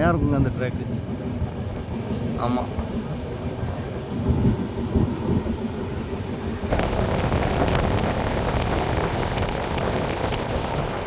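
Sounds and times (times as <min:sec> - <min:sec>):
train running along track: 0:00.0 - 0:11.0
loud rushing hiss: 0:06.7 - 0:11.0.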